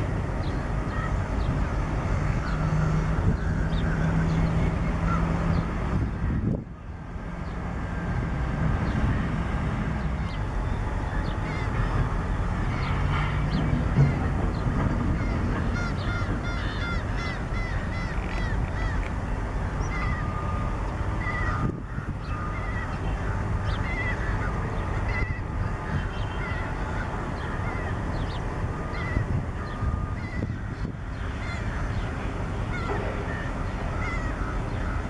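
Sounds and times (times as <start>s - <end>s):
shorebirds piping calls: 10.0s - 35.0s.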